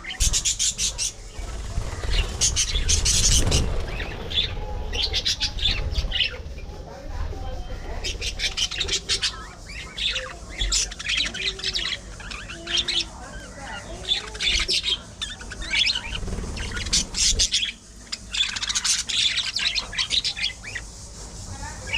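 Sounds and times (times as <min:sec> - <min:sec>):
budgerigars chattering: 0:00.0 - 0:21.9.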